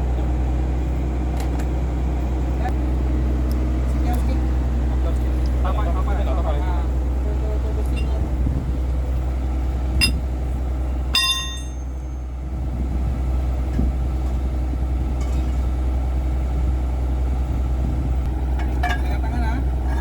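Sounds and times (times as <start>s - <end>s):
engine idling: 0.0s - 20.0s
tool clinking against metal: 7.9s - 8.2s, 10.0s - 10.2s, 11.2s - 12.0s, 18.6s - 19.2s.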